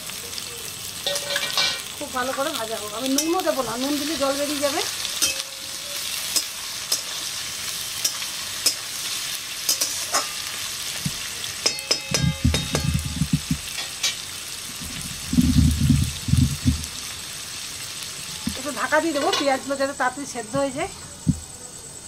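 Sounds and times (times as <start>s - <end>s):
vegetables sizzling in hot oil: 0.0s - 22.0s
metal spatula scraping a pan: 1.0s - 1.9s, 4.8s - 10.8s, 11.6s - 14.3s
spatula knocking on pan: 11.6s - 13.9s
low rumbling: 14.8s - 17.0s.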